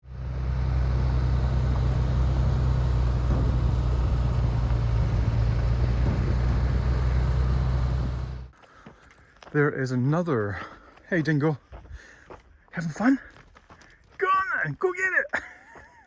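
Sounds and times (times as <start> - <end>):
engine droning: 0.0 - 8.5.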